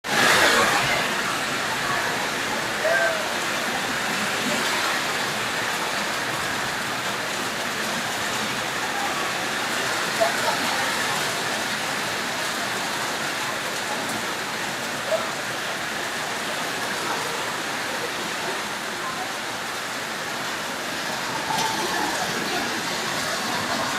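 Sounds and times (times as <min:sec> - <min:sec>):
steady rain falling: 0:00.0 - 0:23.9.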